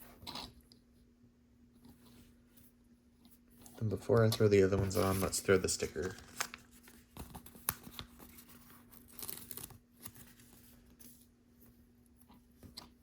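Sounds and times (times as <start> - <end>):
papery rustling: 3.7 - 11.3.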